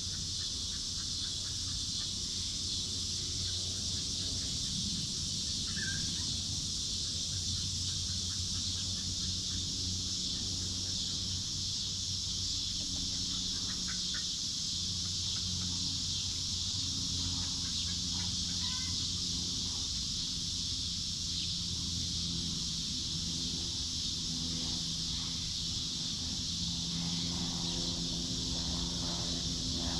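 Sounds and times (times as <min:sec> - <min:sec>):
low hum: 0:14.8 - 0:29.9.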